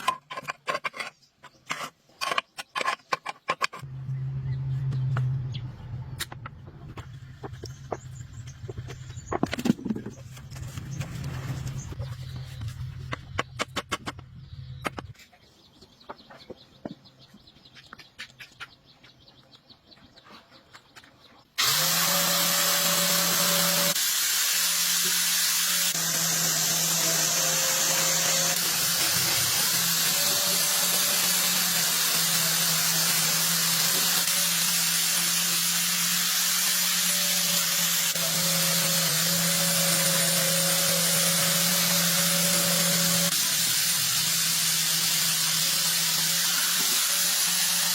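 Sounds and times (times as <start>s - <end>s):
power tool running: 21.6s - 47.9s.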